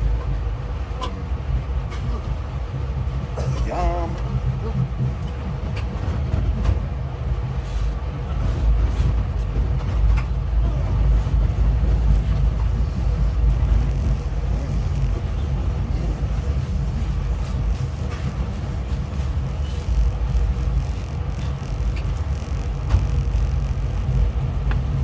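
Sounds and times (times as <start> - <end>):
train rumble from inside carriage: 0.0 - 25.0.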